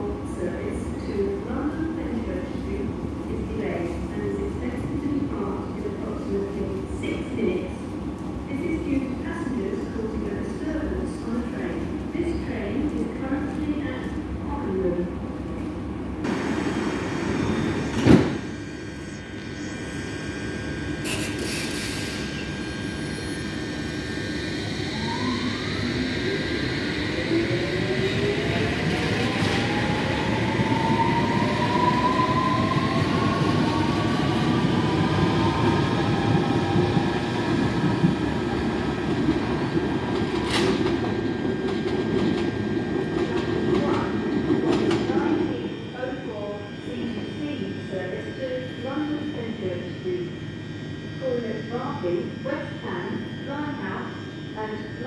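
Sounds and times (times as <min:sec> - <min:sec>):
train motor whine: 0:16.3 - 0:55.0.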